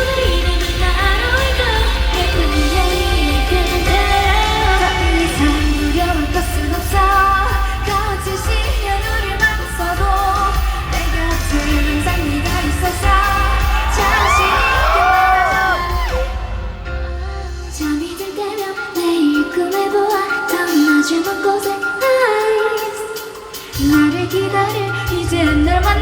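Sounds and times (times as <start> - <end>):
live pop song with heavy bass: 0.0 - 26.0
high rising whoops: 13.4 - 16.7.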